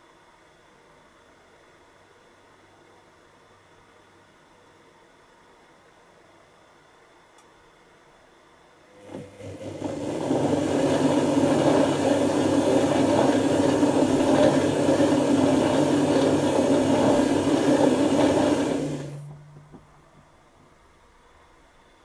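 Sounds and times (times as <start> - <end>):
washing machine motor tumbling: 9.0 - 21.0.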